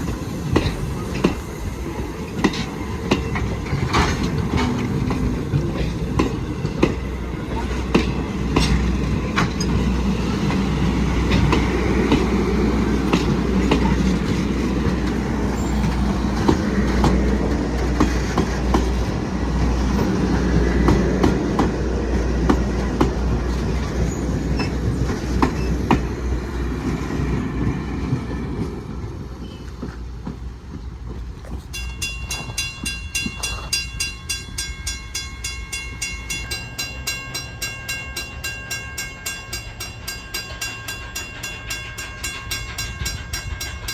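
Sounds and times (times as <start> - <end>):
train wheels clickety-clack: 0.0 - 34.1, 38.2 - 43.9.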